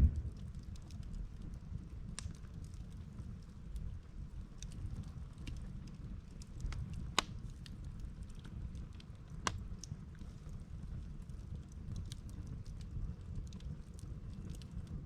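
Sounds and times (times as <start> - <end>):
wood campfire burning: 0.0 - 15.0
logs snapping and popping: 6.6 - 7.4.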